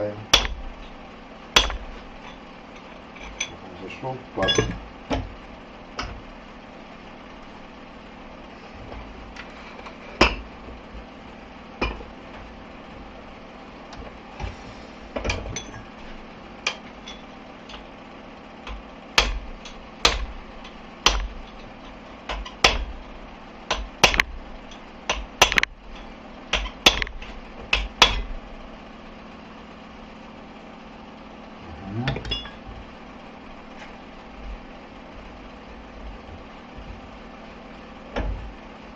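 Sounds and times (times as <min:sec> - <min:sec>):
steady low hum: 0:00.0 - 0:38.9
hammer striking steel: 0:00.3 - 0:00.7, 0:01.6 - 0:02.4, 0:26.5 - 0:28.3.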